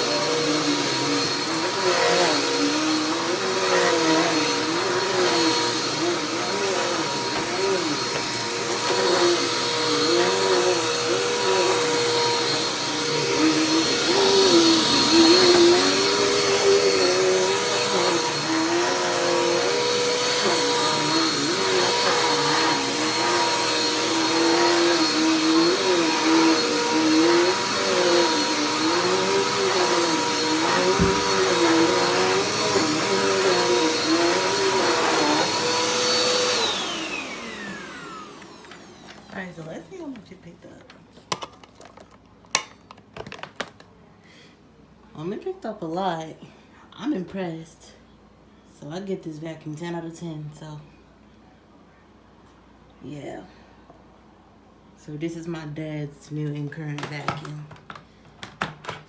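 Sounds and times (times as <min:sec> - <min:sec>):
vacuum motor winding down: 0:00.0 - 0:39.5
vacuum cleaner whining: 0:00.0 - 0:42.1, 0:55.1 - 0:59.0.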